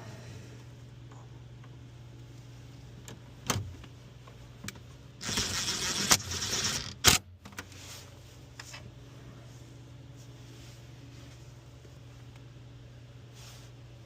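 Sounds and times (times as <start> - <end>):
steady low hum: 0.0 - 14.0
ratchet tool whirring: 5.2 - 7.2.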